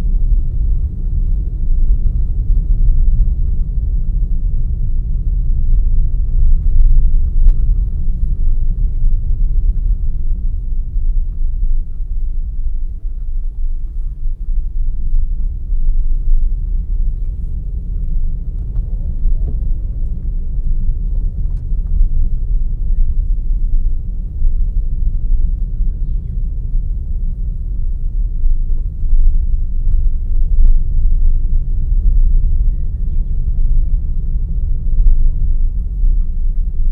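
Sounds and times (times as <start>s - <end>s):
car engine and tyres rumbling: 0.0s - 36.9s.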